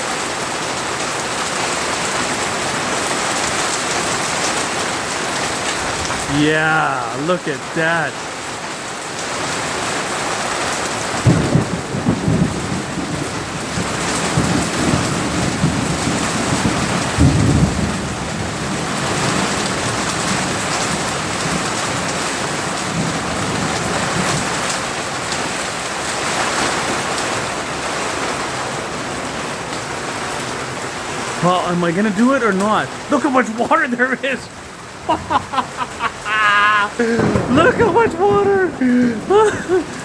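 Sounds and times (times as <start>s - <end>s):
heavy rain pouring: 0.0s - 40.0s
thunder rumbling: 36.9s - 40.0s.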